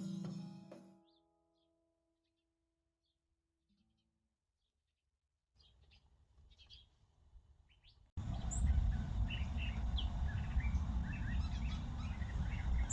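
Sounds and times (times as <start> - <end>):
small birds chirping: 7.7 - 12.9
low steady rumble: 8.2 - 12.9.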